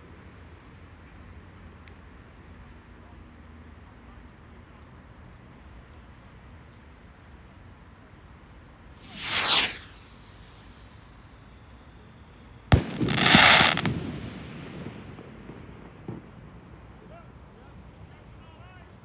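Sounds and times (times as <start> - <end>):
firework falling whoosh: 8.9 - 16.5
loud hissing: 9.0 - 11.7
firework bang: 9.0 - 11.8, 12.7 - 16.7.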